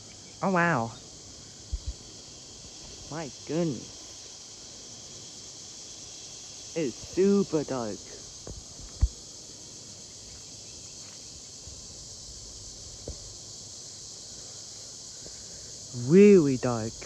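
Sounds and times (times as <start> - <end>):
cicadas buzzing: 0.0 - 17.0.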